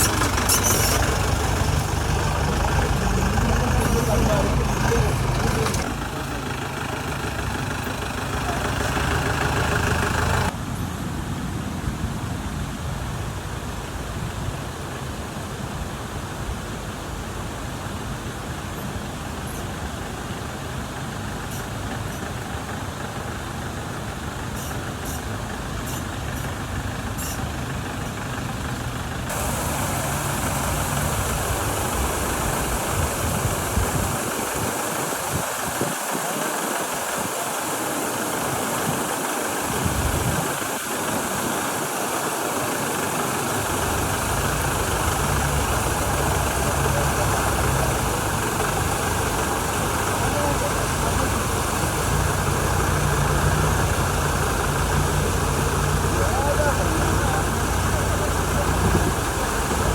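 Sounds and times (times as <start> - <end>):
sharp rattles: 0.0 - 10.5
diesel engine running: 0.0 - 11.7, 13.8 - 59.9.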